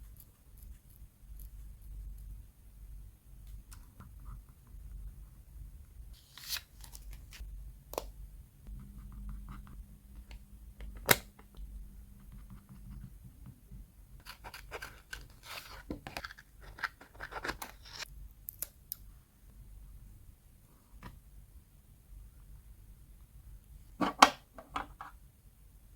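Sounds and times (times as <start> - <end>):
paper handling: 6.2 - 7.4.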